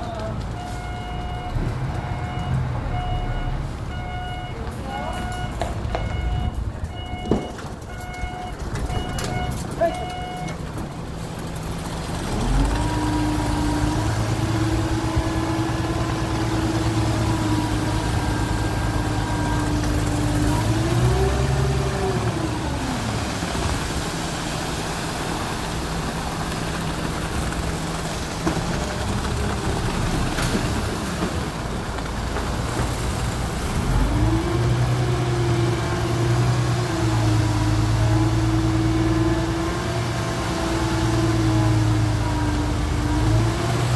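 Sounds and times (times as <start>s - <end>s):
engine revving: 11.6s - 24.1s, 33.6s - 43.9s.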